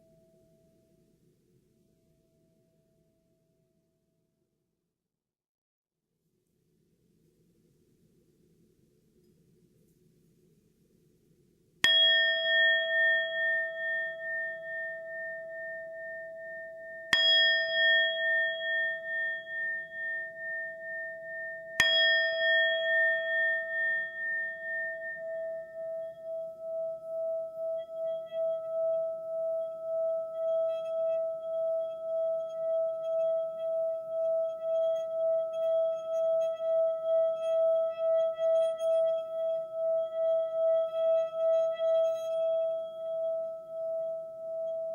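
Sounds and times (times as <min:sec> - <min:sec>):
singing bowl wavering tone: 0:00.0 - 0:00.8, 0:11.8 - 0:44.9
singing bowl struck: 0:11.8 - 0:44.9.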